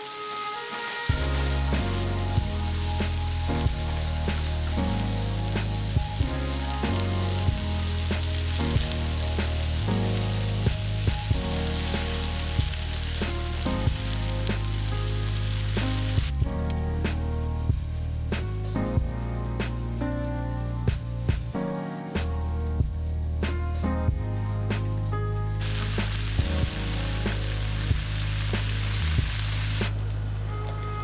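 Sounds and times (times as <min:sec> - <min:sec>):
food sizzling in a pan: 0:00.0 - 0:16.4, 0:25.6 - 0:29.9
background music with bass line: 0:01.1 - 0:31.0.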